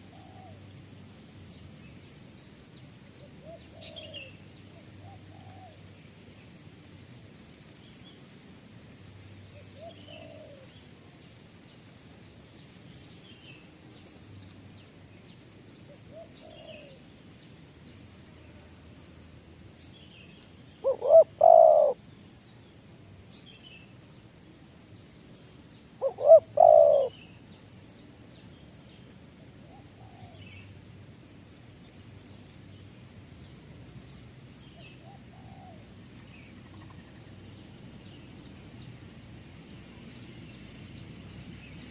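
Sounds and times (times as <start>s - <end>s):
loud bird calls: 3.2s - 5.8s, 9.6s - 10.8s, 15.9s - 17.1s, 20.8s - 22.0s, 25.9s - 27.4s.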